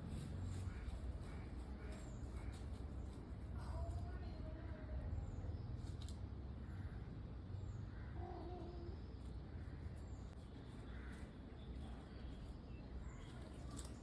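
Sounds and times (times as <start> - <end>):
steady low rumble: 0.0 - 8.1.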